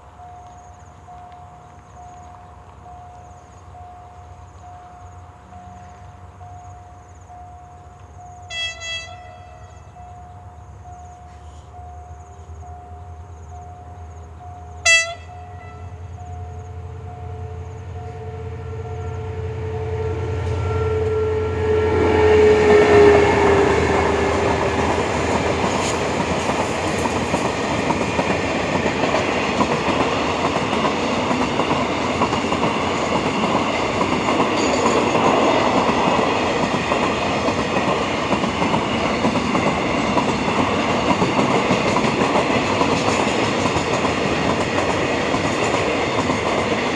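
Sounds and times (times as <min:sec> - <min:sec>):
diesel locomotive passing: 0:00.0 - 0:46.9
level-crossing warning signal: 0:00.0 - 0:46.9
train horn blast: 0:08.5 - 0:10.1, 0:14.8 - 0:16.2, 0:17.1 - 0:26.0.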